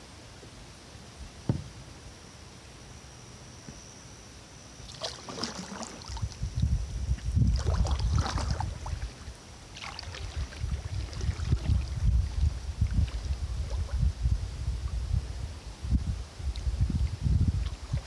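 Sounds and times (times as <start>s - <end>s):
kayak paddle splashing: 4.8s - 6.4s, 7.5s - 12.1s.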